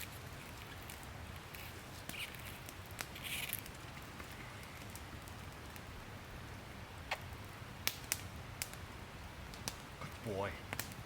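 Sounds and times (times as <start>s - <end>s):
soft rustle: 0.0s - 5.6s
campfire crackling and popping: 0.0s - 11.0s.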